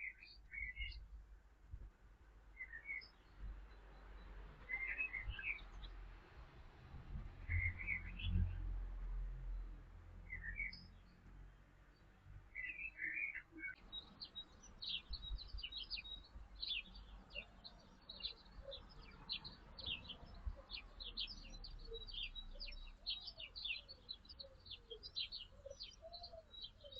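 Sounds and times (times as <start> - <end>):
soft lower bird calls: 0.0 - 1.0, 2.6 - 5.9, 7.5 - 8.6, 10.3 - 10.9, 12.5 - 26.9
small birds chirping: 0.0 - 1.1, 2.5 - 6.4, 7.1 - 8.7, 9.4 - 26.9.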